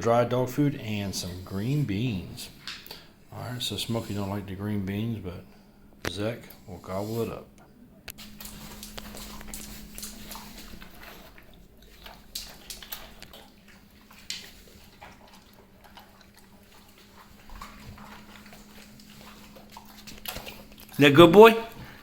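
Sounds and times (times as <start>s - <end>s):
teeth clicking on bowl: 8.1s - 21.0s
dogs crunching kibble: 8.1s - 22.0s.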